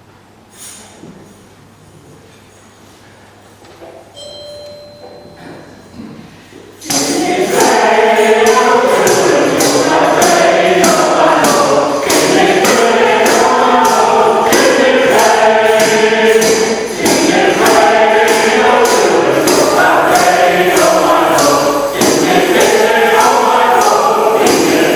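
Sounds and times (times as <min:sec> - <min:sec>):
percussive shaker beat: 0:05.2 - 0:24.9
group of voices singing: 0:06.8 - 0:24.9.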